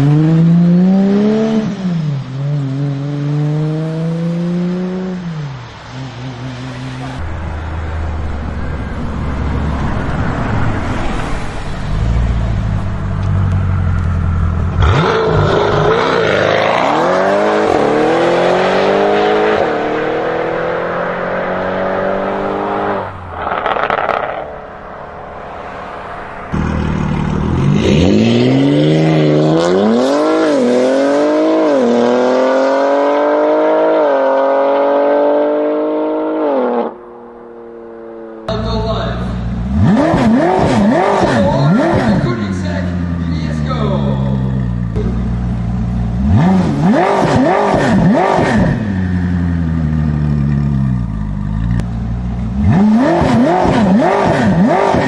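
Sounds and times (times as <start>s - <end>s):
car engines accelerating hard: 0.0s - 55.0s.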